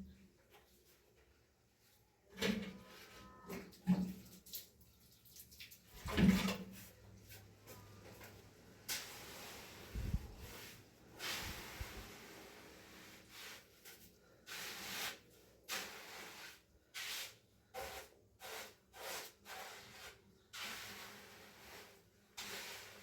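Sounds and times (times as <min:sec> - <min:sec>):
hand tool scraping cement: 0:08.9 - 0:23.0.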